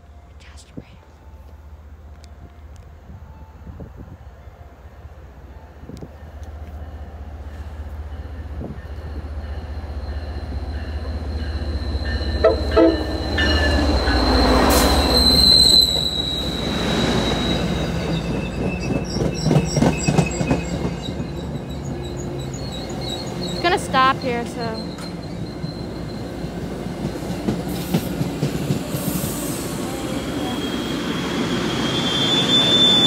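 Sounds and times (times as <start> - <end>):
high squeal of wheels: 13.2 - 23.7, 24.7 - 26.5, 30.3 - 33.0
diesel locomotive rumble: 17.6 - 33.0.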